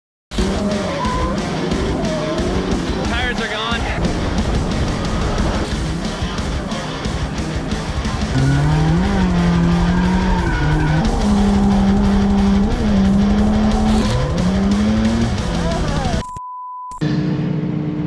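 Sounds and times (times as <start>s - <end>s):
tyres skidding: 0.3s - 16.2s
music: 0.3s - 16.3s
car engine revving high: 8.0s - 16.2s, 17.0s - 18.0s.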